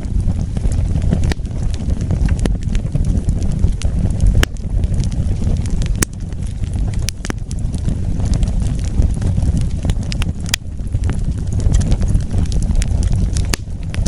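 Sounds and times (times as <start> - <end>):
fire crackling and popping: 0.0 - 14.0
wood fire roaring: 0.0 - 14.0.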